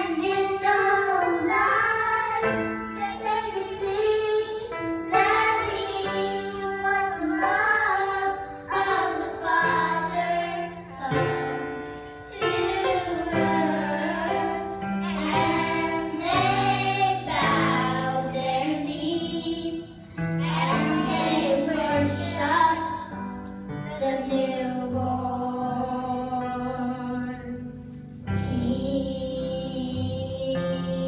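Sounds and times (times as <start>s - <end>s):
child singing: 0.0s - 23.3s, 23.9s - 27.6s, 28.4s - 31.0s.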